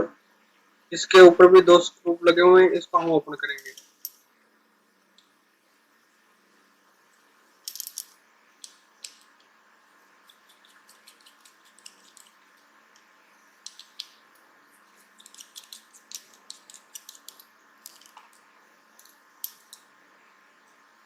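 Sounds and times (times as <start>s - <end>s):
small screwdriver clicks and scrapes: 10.3s - 12.4s, 15.0s - 18.4s.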